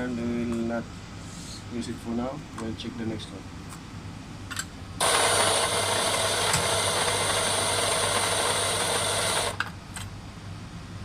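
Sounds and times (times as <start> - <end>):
coffee grinder grinding beans: 5.0 - 9.6.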